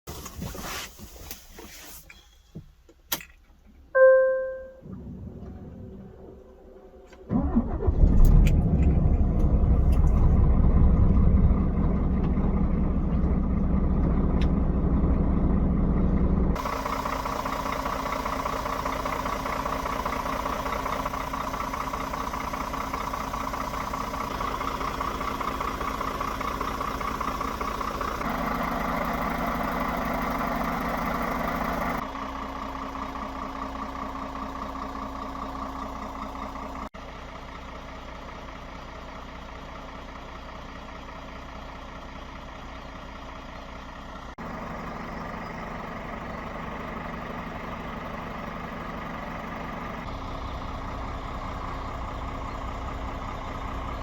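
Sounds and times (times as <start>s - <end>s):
truck diesel engine idling: 4.0s - 54.0s.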